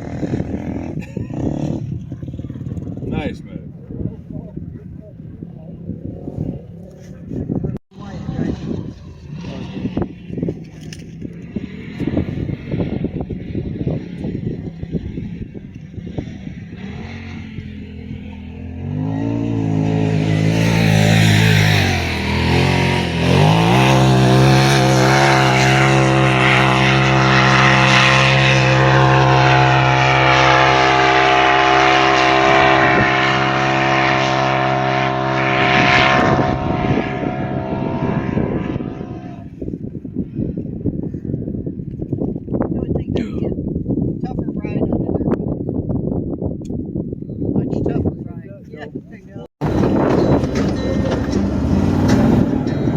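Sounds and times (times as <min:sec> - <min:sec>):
off-road vehicle engine revving: 0:00.0 - 0:04.6, 0:05.6 - 0:39.7, 0:49.2 - 0:52.9.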